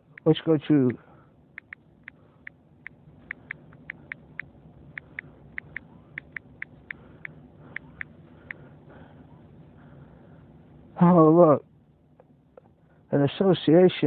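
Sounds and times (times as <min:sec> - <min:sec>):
faint low hum: 0:00.0 - 0:14.0
short light clicks: 0:01.6 - 0:08.6.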